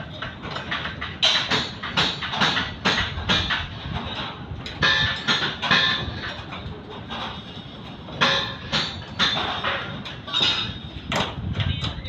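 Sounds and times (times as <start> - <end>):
hammering on metal: 0.1 - 3.8, 4.7 - 6.4, 8.1 - 11.4.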